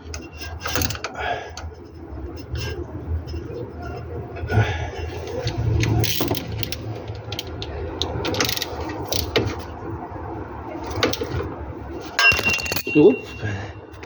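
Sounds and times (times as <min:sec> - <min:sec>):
low hum: 0:00.0 - 0:14.0
ratchet wrench clicking: 0:05.4 - 0:09.6
hand tools clinking on metal: 0:12.1 - 0:13.4.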